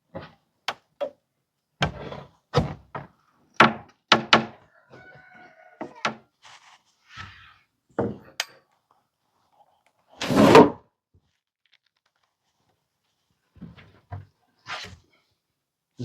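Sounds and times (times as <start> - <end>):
wooden boards knocking: 2.9 - 4.6.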